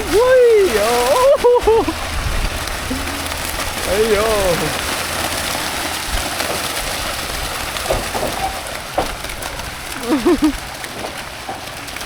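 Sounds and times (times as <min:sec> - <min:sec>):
people exclaiming: 0:00.0 - 0:02.0, 0:10.0 - 0:10.6
fish splashing at water surface: 0:00.0 - 0:12.0.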